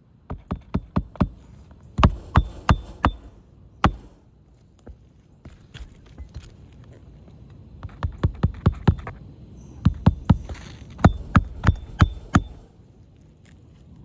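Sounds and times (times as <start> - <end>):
hammer striking roofing nails: 0.3 - 4.2, 7.8 - 9.2, 9.8 - 12.7.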